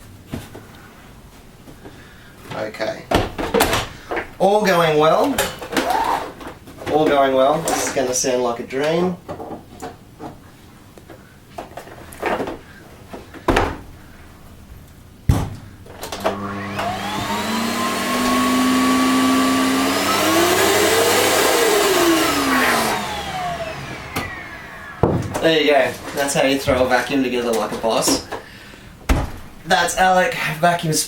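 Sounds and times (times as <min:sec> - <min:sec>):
vacuum cleaner motor whine: 0:16.1 - 0:26.9
knocks: 0:25.0 - 0:25.4.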